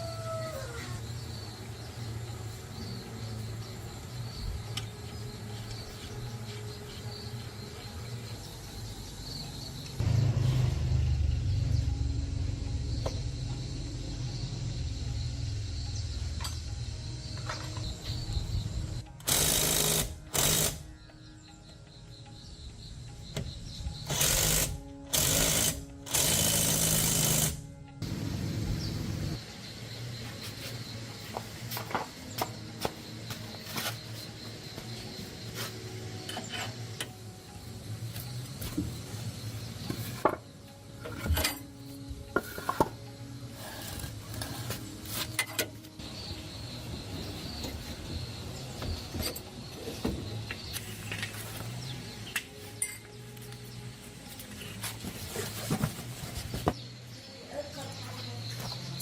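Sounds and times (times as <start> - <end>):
chainsaw engine revving: 10.0 - 11.7, 24.1 - 28.2
metal parts and tools clinking: 41.0 - 43.0, 50.7 - 53.6.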